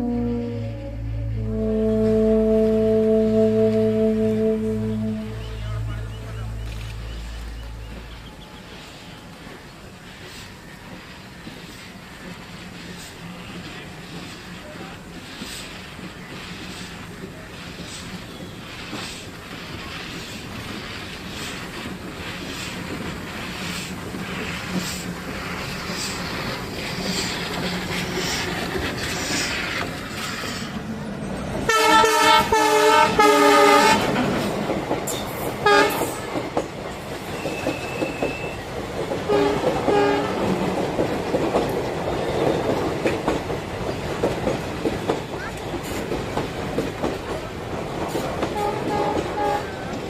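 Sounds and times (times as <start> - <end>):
train horn blasts: 0.0 - 8.2, 31.7 - 34.2, 35.6 - 36.3, 39.3 - 40.7, 48.5 - 49.9
train running rhythmically: 0.7 - 50.0.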